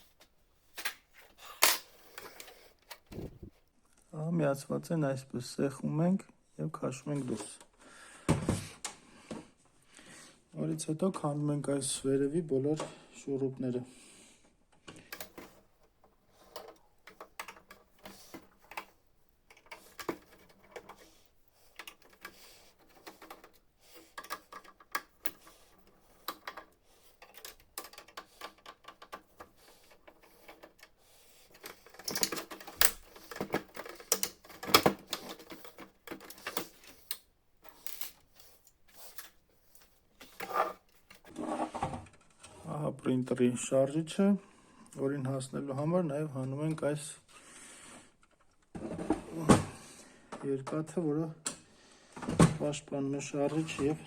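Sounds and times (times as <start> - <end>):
plastic parts clicking and rattling: 0.8 - 3.5, 14.7 - 41.3
screwdriver undoing screws: 16.3 - 41.3.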